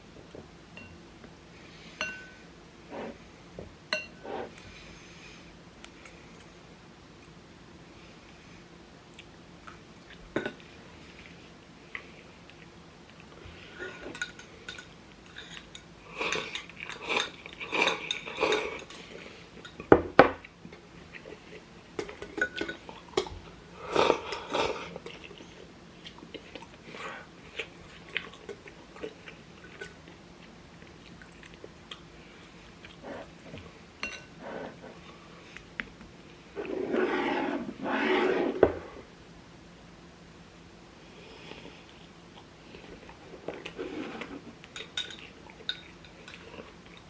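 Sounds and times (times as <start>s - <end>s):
utensils clinking on dishes: 2.0s - 2.4s, 4.0s - 4.2s, 13.8s - 19.9s, 22.0s - 23.4s, 34.0s - 34.4s, 44.8s - 47.0s
chewing: 23.9s - 36.0s.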